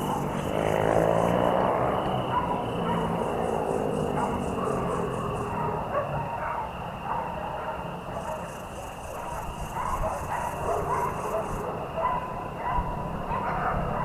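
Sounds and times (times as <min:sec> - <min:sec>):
crickets and insects chirring: 0:00.0 - 0:05.9, 0:07.8 - 0:11.9.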